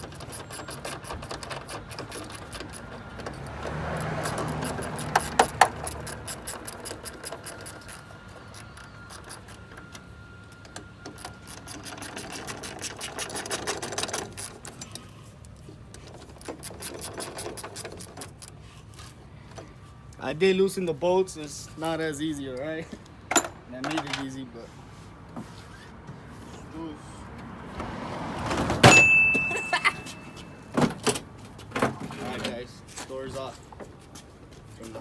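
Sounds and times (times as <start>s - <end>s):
ratchet wrench clicking: 0.0s - 9.7s, 11.1s - 15.0s, 16.3s - 18.6s.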